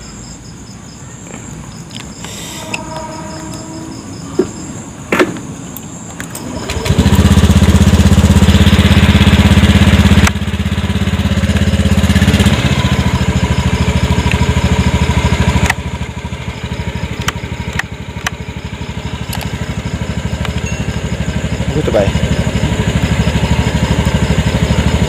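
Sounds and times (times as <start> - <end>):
motorcycle engine idling: 2.6 - 25.0
sharp clicks: 17.1 - 18.4, 19.3 - 19.6.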